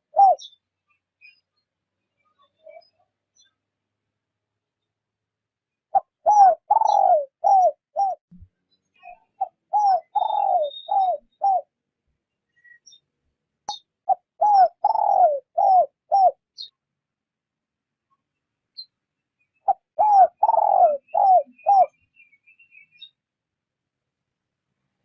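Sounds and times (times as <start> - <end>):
dove cooing: 0.0 - 0.5, 5.9 - 8.2, 9.4 - 11.7, 14.1 - 16.4, 19.7 - 22.0.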